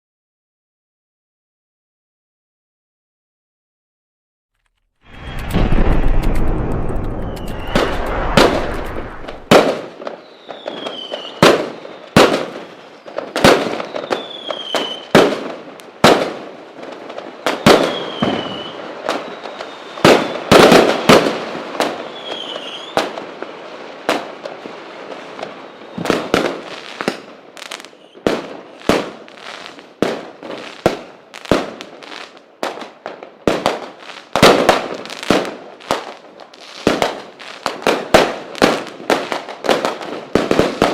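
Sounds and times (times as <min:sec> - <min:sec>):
falling firework whistles: 0:05.1 - 0:15.3, 0:17.4 - 0:23.6, 0:25.2 - 0:29.9.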